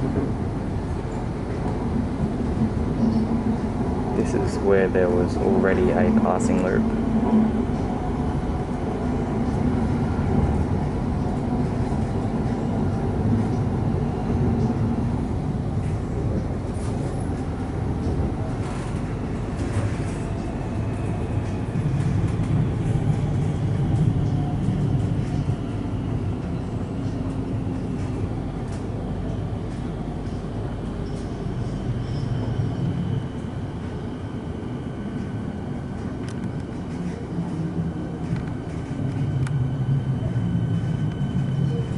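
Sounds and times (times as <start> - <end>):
train wheels rumbling on rail: 0.0 - 41.9.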